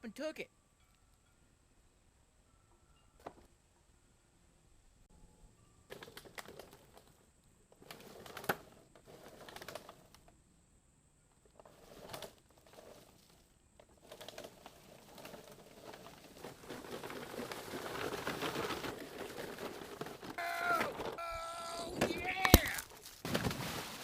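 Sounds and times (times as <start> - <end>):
plastic toy wheels crunching: 5.9 - 7.2, 7.8 - 10.2, 11.6 - 24.0
person yelling: 20.4 - 22.9.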